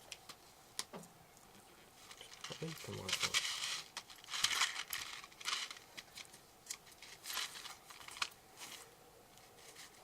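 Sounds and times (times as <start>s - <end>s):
packaging crinkling and rustling: 2.0s - 10.0s.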